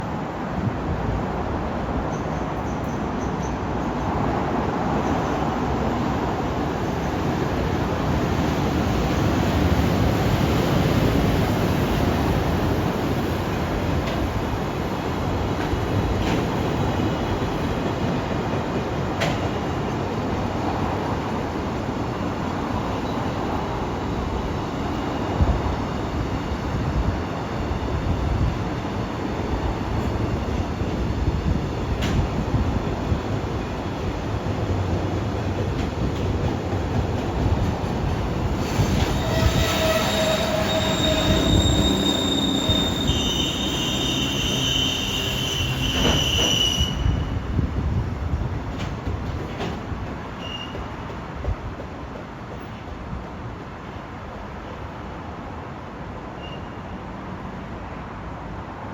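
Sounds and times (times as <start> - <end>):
train wheels rumbling on rails: 0.6 - 55.8
high-pitched wheel squeal: 39.1 - 47.3.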